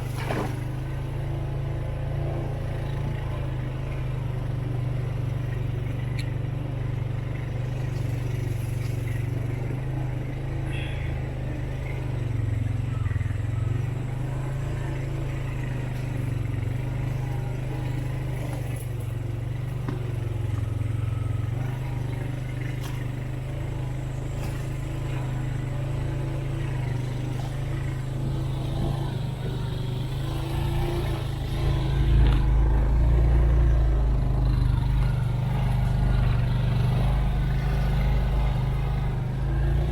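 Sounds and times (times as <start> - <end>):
off-road vehicle engine running: 0.0 - 39.9
vehicle rattles and knocks: 11.6 - 39.9.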